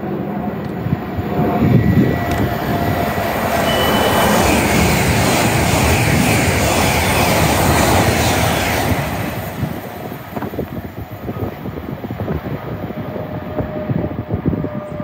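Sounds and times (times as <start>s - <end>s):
train passing at speed: 0.0s - 15.0s
faint steady tone: 3.6s - 5.2s.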